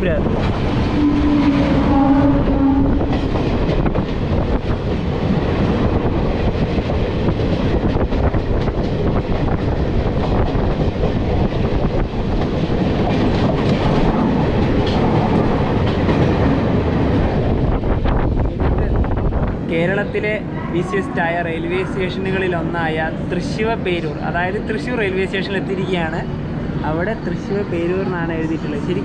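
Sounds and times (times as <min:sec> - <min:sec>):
passing train: 0:00.0 - 0:29.0
train wheels clacking on rails: 0:00.2 - 0:17.5
train horn: 0:00.9 - 0:03.1.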